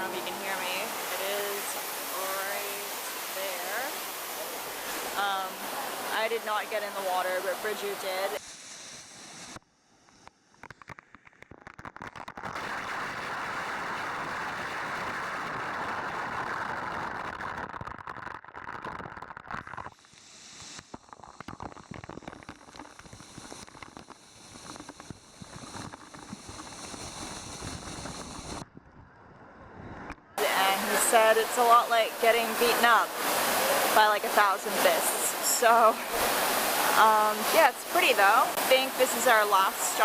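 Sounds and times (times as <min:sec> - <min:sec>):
waterfall rushing and splashing: 0:00.0 - 0:08.4, 0:30.4 - 0:40.0.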